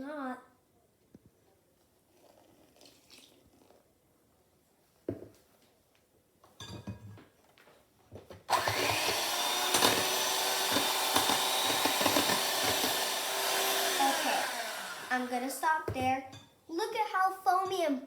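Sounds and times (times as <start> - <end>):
electric mixer running: 8.5 - 15.6.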